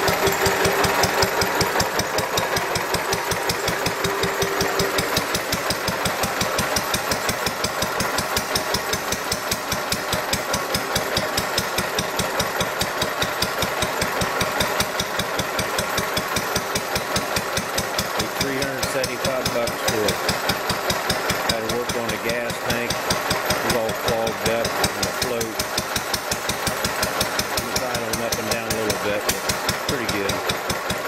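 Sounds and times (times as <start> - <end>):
stationary engine idling: 0.0 - 31.0.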